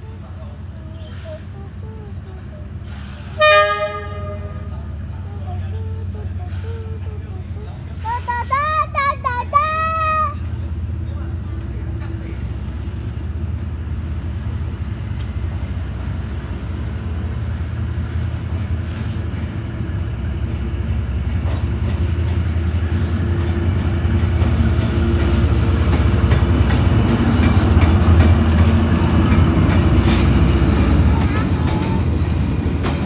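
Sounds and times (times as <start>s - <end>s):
locomotive engine rumble: 0.0s - 33.0s
wheels clicking over rails: 23.4s - 33.0s.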